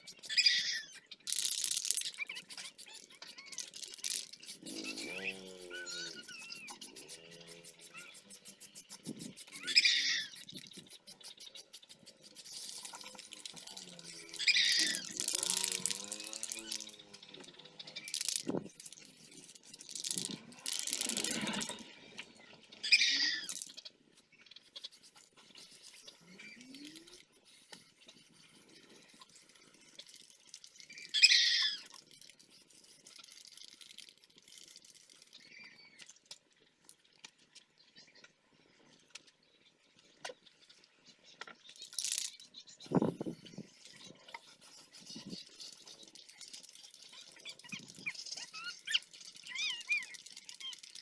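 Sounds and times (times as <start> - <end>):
wavering animal call: 2.1 - 8.5, 9.4 - 10.8, 13.2 - 17.0, 22.8 - 23.6.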